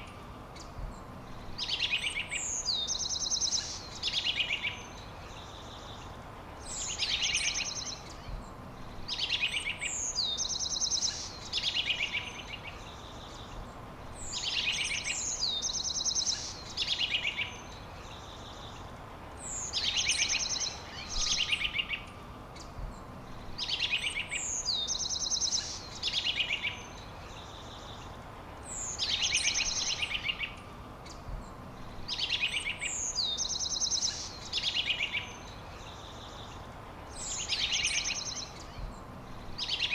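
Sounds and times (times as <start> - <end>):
songbird singing with buzzy trills: 0.0 - 39.9
steady background hiss: 0.0 - 39.9.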